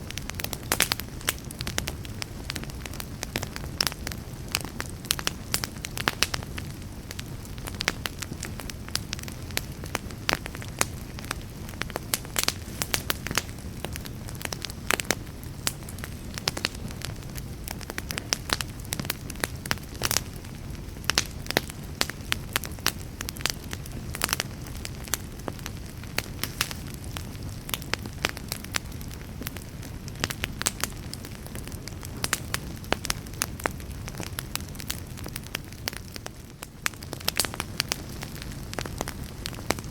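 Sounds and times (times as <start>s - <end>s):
fire crackling and popping: 0.0s - 39.9s
low rumble of fire: 0.0s - 39.9s.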